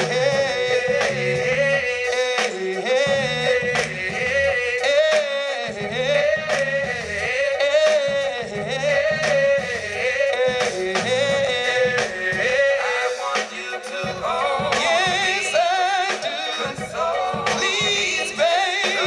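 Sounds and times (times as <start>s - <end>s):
repeating bass line: 0.0s - 2.1s, 3.0s - 4.8s, 5.7s - 12.8s
steady drum beat: 0.0s - 19.0s.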